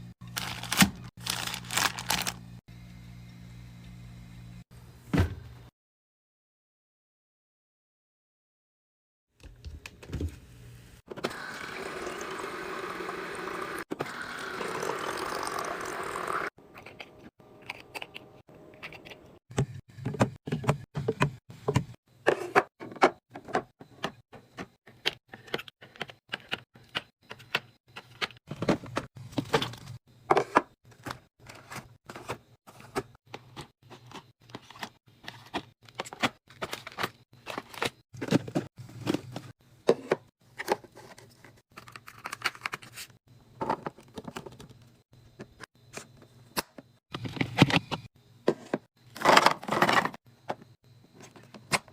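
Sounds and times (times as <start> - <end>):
liquid pouring: 11.5 - 16.5.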